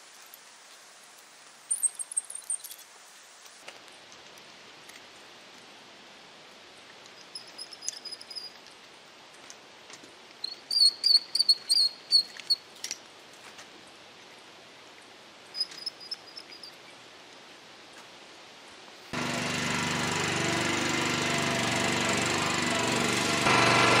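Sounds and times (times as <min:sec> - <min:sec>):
songbird singing high chirps: 0:10.4 - 0:12.6, 0:15.6 - 0:16.9.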